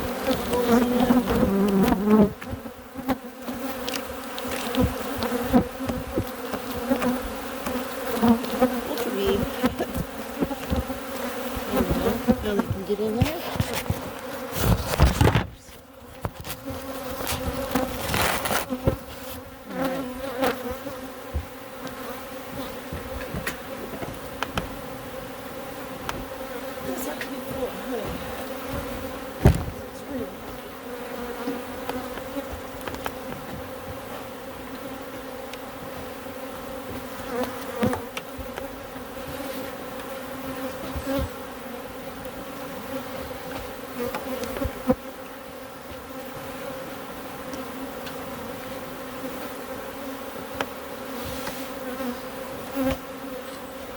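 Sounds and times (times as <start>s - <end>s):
bees buzzing: 0.0s - 53.9s
knocks on hive: 4.8s - 7.8s, 21.3s - 21.6s, 26.0s - 30.0s.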